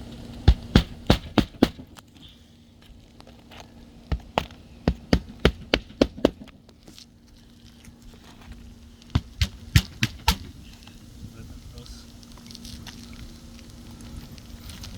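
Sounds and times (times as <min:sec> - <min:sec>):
faint steady hum: 0:00.0 - 0:14.9
tool knocking on shingle roof: 0:00.4 - 0:02.0, 0:04.1 - 0:06.6, 0:09.2 - 0:10.6.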